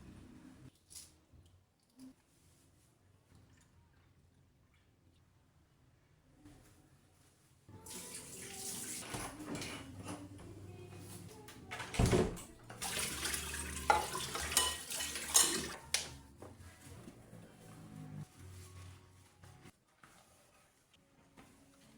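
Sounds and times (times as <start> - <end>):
water running: 7.7 - 16.2.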